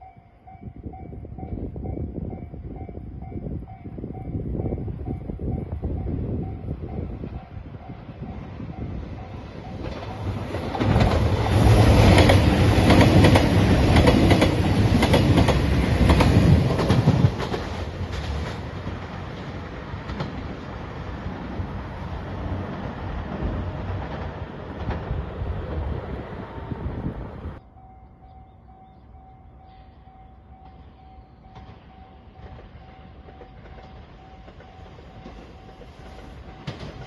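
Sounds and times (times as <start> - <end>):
train wheels clicking over rail joints: 9.6 - 21.5, 22.5 - 26.0, 30.6 - 37.0.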